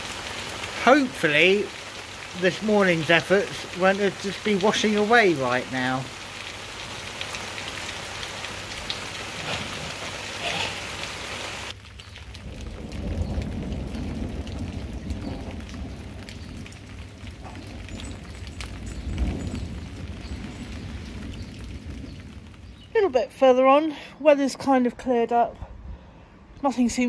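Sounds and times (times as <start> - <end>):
rain pouring: 0.0 - 24.1.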